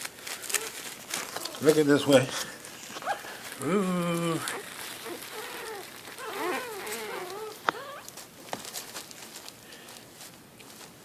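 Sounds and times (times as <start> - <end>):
puppies whimpering and squeaking: 0.4 - 2.0, 2.9 - 3.4, 4.2 - 8.2.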